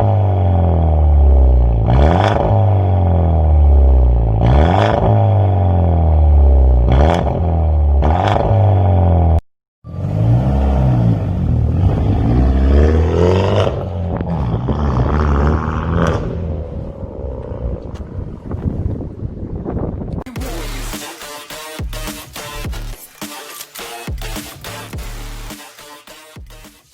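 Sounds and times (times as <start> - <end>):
car engine revving: 0.0 - 18.5.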